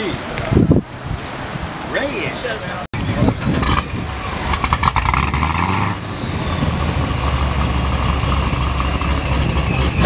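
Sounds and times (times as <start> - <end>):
car engine idling: 6.0 - 10.0.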